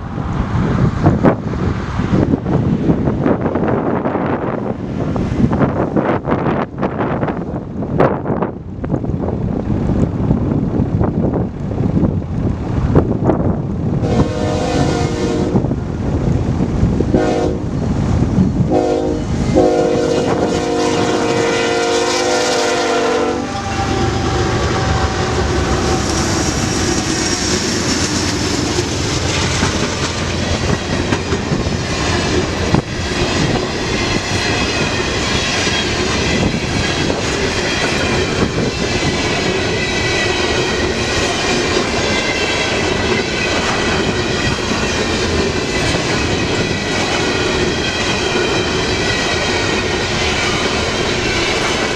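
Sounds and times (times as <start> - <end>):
train wheel and rail rumble: 0.0 - 51.9
locomotive air horn blasts: 14.0 - 15.6, 17.2 - 17.6, 18.7 - 26.1.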